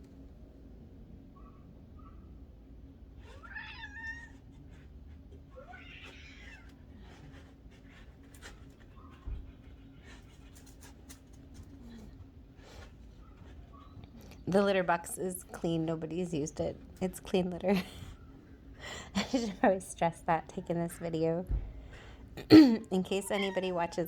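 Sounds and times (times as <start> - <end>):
cat meowing: 3.2 - 4.4, 5.5 - 6.8.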